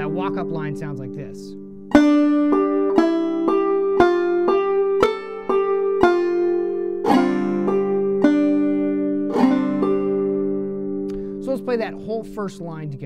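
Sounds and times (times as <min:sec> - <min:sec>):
banjo playing: 0:00.0 - 0:13.0.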